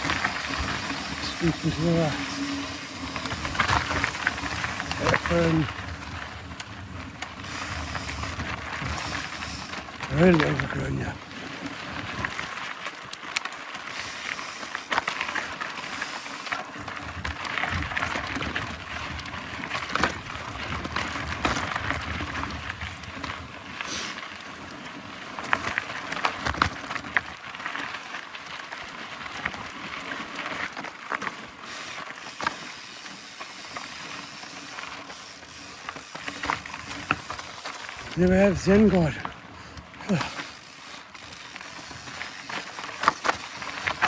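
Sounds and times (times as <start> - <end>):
freewheel ticking: 0.0 - 12.4, 13.0 - 23.3, 31.6 - 44.0
bike tyres on dirt trail: 0.0 - 44.0
bike knocks and rattles: 14.0 - 23.5, 30.4 - 44.0.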